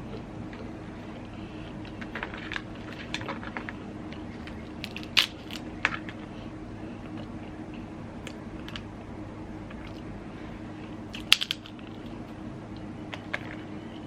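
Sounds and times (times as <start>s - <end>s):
steady low hum: 0.0s - 14.0s
crab shells cracking: 0.1s - 6.3s, 11.1s - 12.4s.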